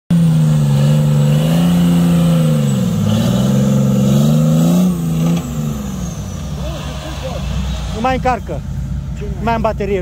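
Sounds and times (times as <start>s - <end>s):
car engine revving under load: 0.1s - 9.8s.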